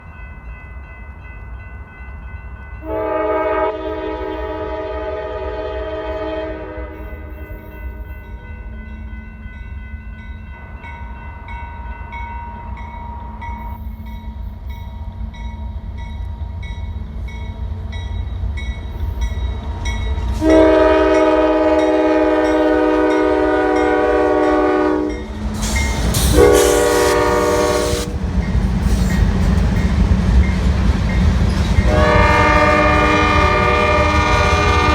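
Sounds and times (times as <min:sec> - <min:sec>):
low rumble of approaching train: 0:00.0 - 0:34.9
locomotive air horn blasts: 0:02.8 - 0:07.5, 0:20.4 - 0:25.2, 0:26.1 - 0:28.1, 0:31.9 - 0:34.9.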